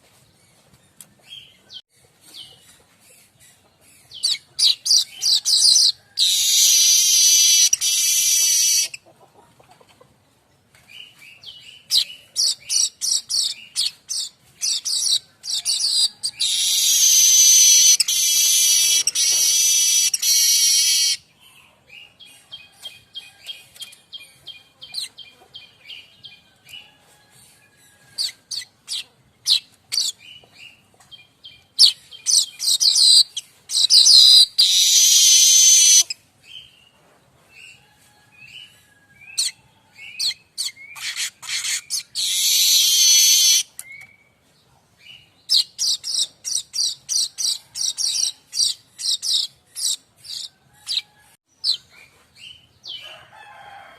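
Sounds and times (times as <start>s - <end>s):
bird singing chips and chatter: 0.5s - 9.0s, 10.9s - 21.2s, 27.7s - 36.8s, 39.2s - 44.3s, 45.1s - 51.0s.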